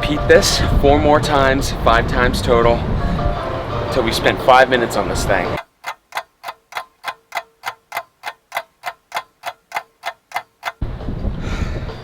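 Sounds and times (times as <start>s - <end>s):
clock ticking: 3.3s - 10.9s.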